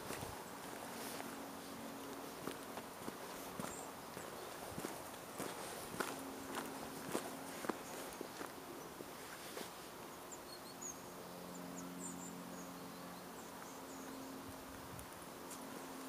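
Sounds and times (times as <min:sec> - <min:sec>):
footsteps: 0:00.0 - 0:09.8
small birds chirping: 0:00.0 - 0:16.0.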